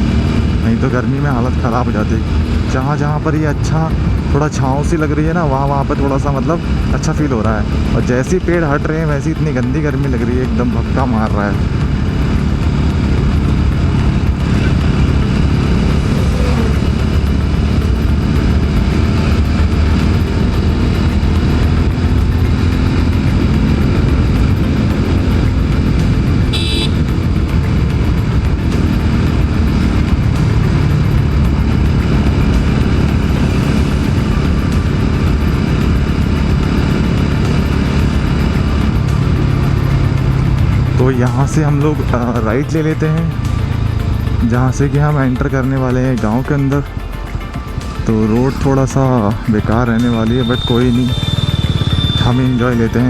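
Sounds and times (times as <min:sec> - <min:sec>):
motorcycle engine running: 0:00.0 - 0:53.0
high-pitched tone: 0:47.0 - 0:53.0.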